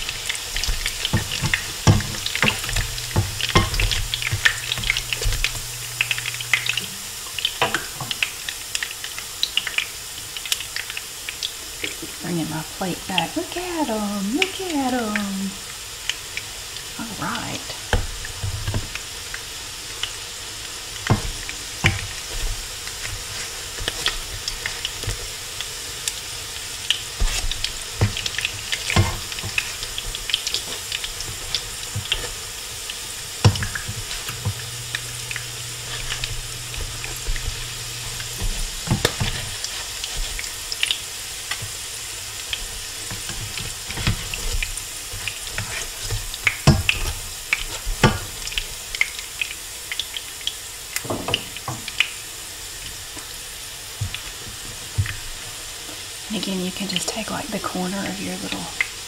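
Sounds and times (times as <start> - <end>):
spatula scraping and knocking pan: 0.0 - 8.3, 21.0 - 25.3, 27.1 - 40.9, 42.6 - 48.4
patties sizzling in hot oil: 0.0 - 59.0.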